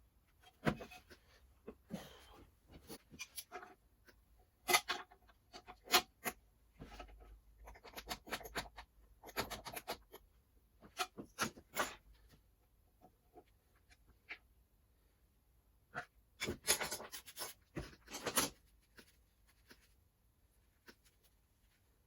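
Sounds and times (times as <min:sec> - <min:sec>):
scraping and rubbing on parts: 0:15.9 - 0:22.0.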